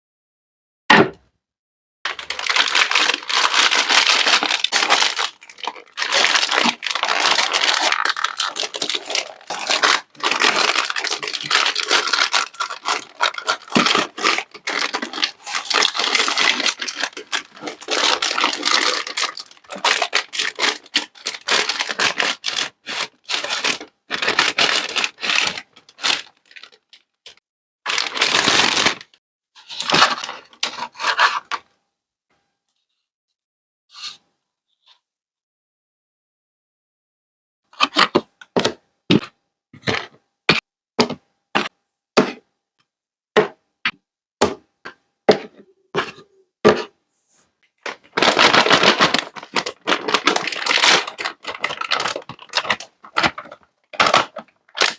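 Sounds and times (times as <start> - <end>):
plastic packaging crinkling: 2.1 - 29.1, 47.9 - 54.9.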